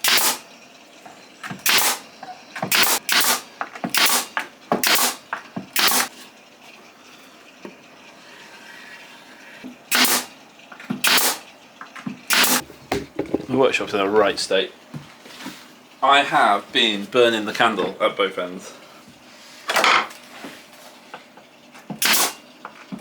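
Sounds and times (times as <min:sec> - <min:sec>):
nail gun firing into wood: 0:00.0 - 0:00.4, 0:01.6 - 0:02.0, 0:02.7 - 0:06.1, 0:09.9 - 0:10.3, 0:11.0 - 0:11.4, 0:12.3 - 0:12.6, 0:22.0 - 0:22.4.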